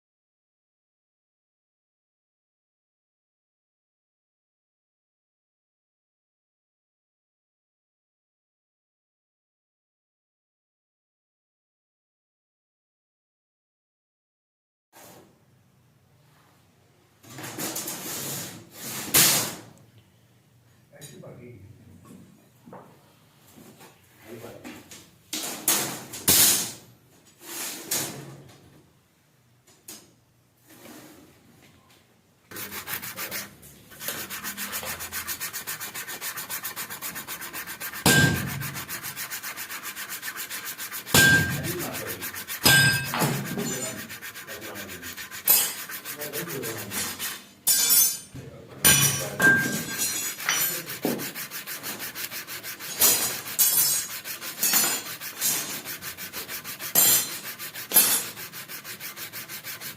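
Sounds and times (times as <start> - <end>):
sanding rasp on metal blade: 32.5 - 48.3, 48.9 - 59.9.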